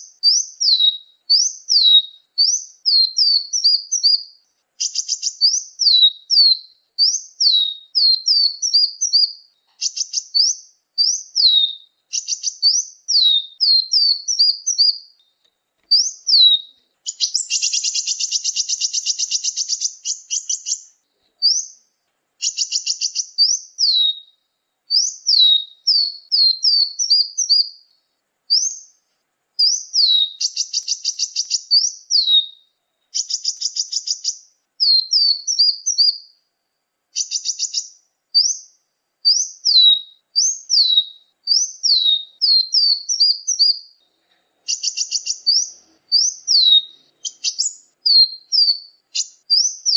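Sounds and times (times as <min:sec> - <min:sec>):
buzzy bird trills: 0:00.0 - 0:15.2, 0:15.9 - 0:21.8, 0:22.4 - 0:27.8, 0:29.6 - 0:36.3, 0:44.7 - 0:49.9
songbirds chirping: 0:00.0 - 0:49.9.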